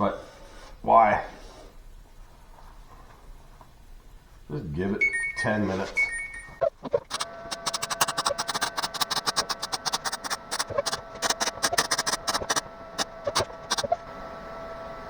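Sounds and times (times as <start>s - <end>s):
steady hum: 6.3s - 15.0s
welding arc crackling: 6.9s - 14.0s.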